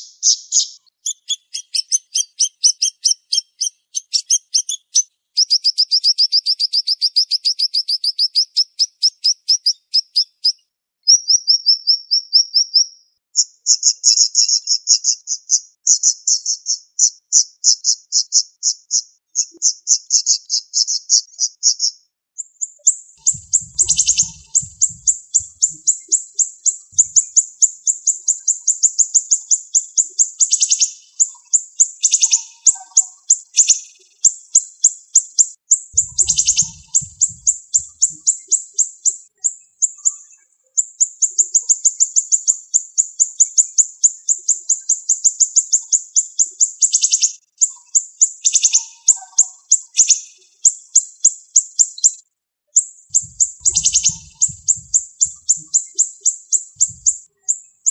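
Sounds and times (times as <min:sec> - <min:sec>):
bird singing fast trills: 0:00.0 - 0:10.6, 0:22.6 - 0:52.2, 0:52.8 - 0:57.9.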